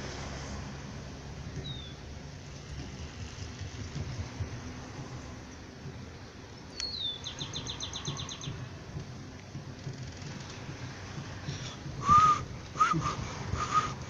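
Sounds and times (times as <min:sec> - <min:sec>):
low outdoor rumble: 0:00.0 - 0:14.0
bird whistle and trill: 0:06.7 - 0:08.6.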